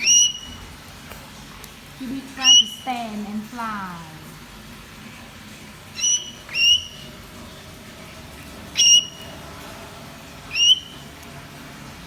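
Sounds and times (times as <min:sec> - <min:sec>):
parrot whistling calls: 0:00.0 - 0:00.7, 0:02.4 - 0:02.9, 0:05.9 - 0:07.2, 0:08.7 - 0:09.4, 0:10.5 - 0:11.1.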